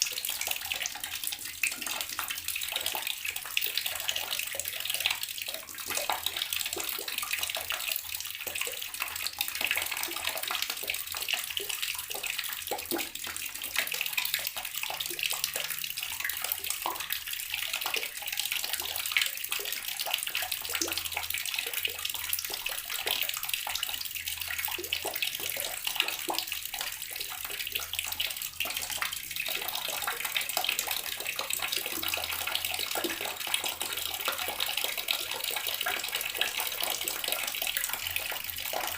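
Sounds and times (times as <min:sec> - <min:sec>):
tap water splashing: 0:00.8 - 0:15.7.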